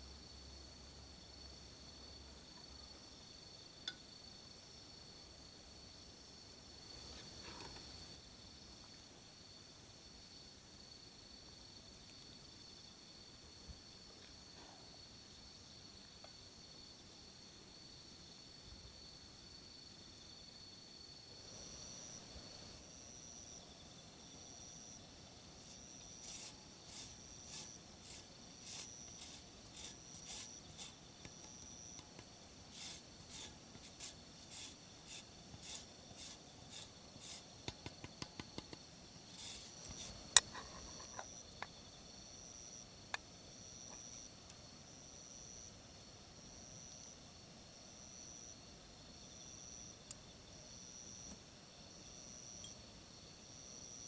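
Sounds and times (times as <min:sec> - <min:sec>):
insects singing in high pulses: 0:00.0 - 0:54.0
rustling scraping strokes: 0:25.6 - 0:37.8, 0:39.3 - 0:41.2.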